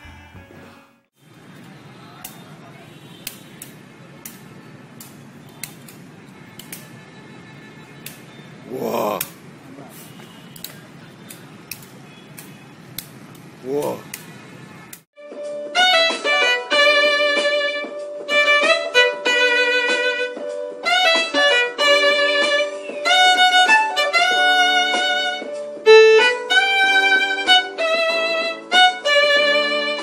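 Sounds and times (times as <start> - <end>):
violin melody: 15.8 - 30.0.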